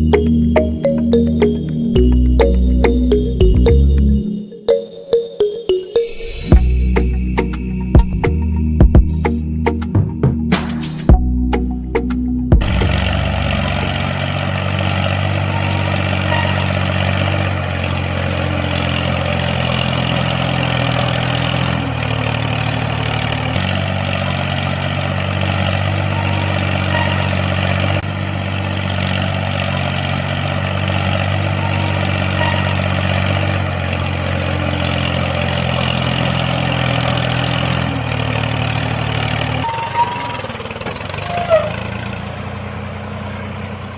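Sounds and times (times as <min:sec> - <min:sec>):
small vehicle engine running: 0:11.5 - 0:43.9.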